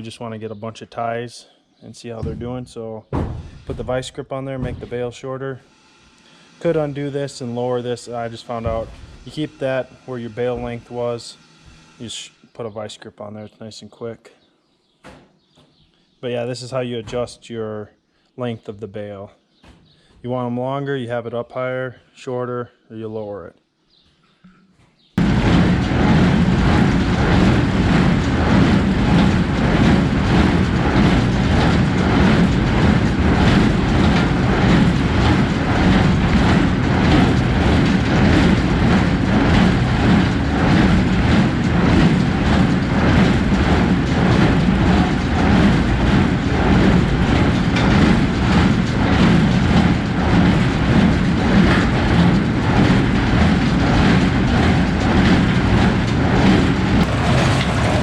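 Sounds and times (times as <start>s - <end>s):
baler mechanical clatter: 2.0s - 5.6s, 6.5s - 12.3s, 25.2s - 58.0s.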